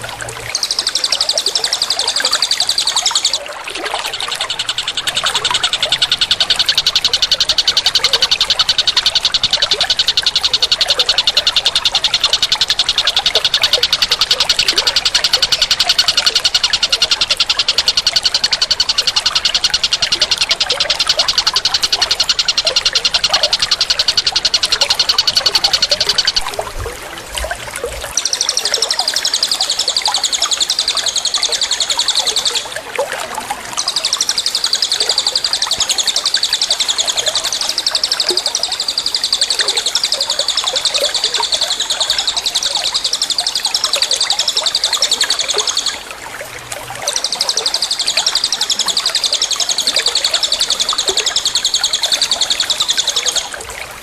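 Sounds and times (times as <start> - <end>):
songbird fast high trill: 0.0 - 26.6, 47.0 - 53.6.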